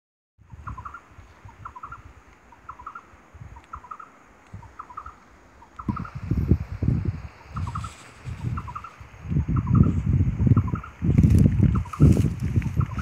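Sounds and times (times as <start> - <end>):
bird calling: 0.5 - 6.6, 7.3 - 11.0, 11.7 - 13.0
low rumble on microphone: 5.7 - 13.0.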